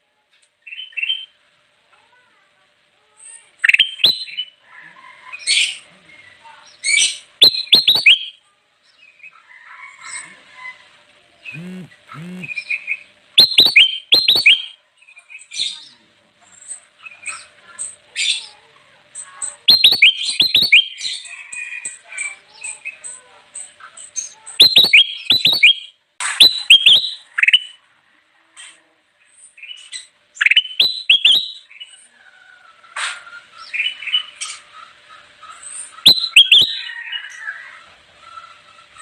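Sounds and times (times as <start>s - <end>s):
soft bird chatter: 0.0s - 39.0s
bulbul singing chirped notes: 7.4s - 8.4s, 11.5s - 12.8s, 13.4s - 14.7s, 19.7s - 21.0s, 24.6s - 27.0s, 30.6s - 31.6s, 36.1s - 36.8s.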